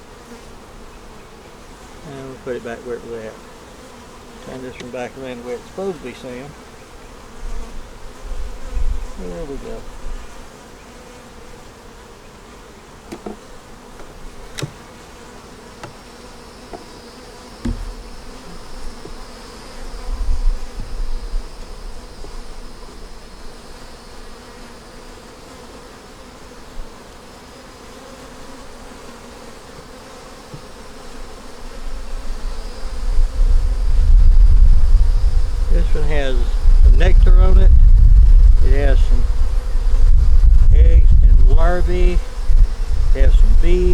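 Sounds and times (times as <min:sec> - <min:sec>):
honey bees buzzing: 0:00.0 - 0:43.9
sharp knocks: 0:17.6 - 0:18.0.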